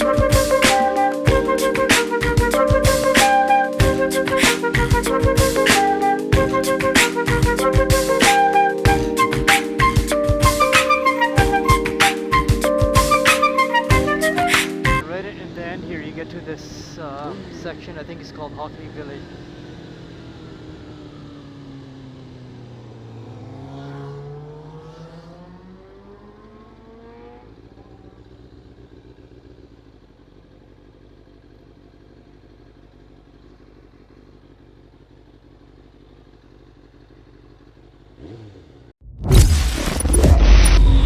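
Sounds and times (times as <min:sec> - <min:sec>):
motorcycle engine revving: 0:36.5 - 0:38.9
sudden loud burst: 0:39.1 - 0:41.0.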